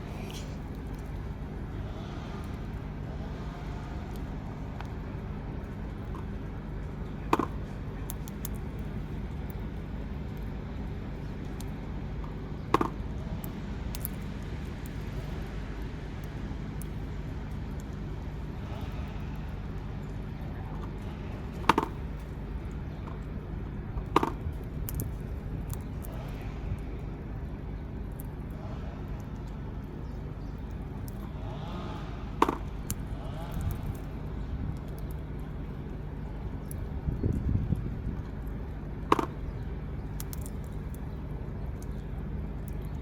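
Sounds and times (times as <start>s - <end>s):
low traffic-like rumble: 0.0s - 43.0s
small clicks: 38.3s - 41.1s.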